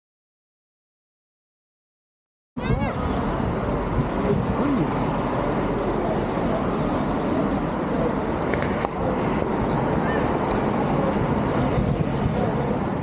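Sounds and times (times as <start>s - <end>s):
low traffic rumble: 2.6s - 13.0s.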